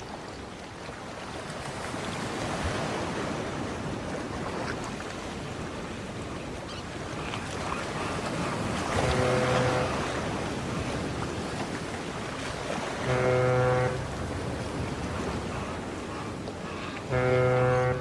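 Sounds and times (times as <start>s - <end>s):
rushing floodwater roar: 0.0s - 18.0s
low horn-like tone: 8.9s - 10.0s, 13.0s - 14.8s, 17.1s - 18.0s.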